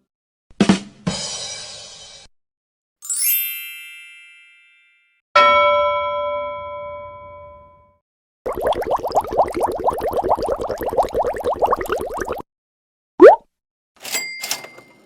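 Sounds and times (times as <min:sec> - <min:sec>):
bright high chime: 0:03.0 - 0:05.2
bubbly gurgling effect: 0:08.5 - 0:12.4
bell ringing out: 0:14.0 - 0:15.0.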